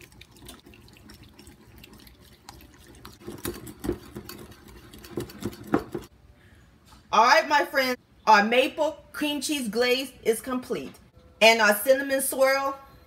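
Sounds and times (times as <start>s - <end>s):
whisk wet squelching: 0.0s - 6.1s.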